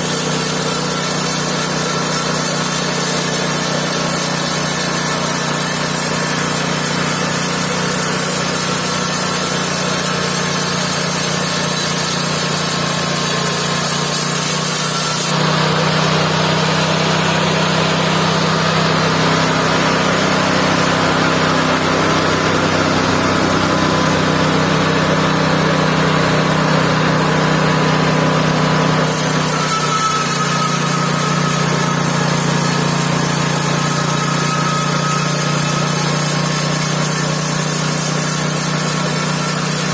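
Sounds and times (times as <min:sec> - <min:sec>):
band sawmill droning: 0:00.0 - 0:39.9.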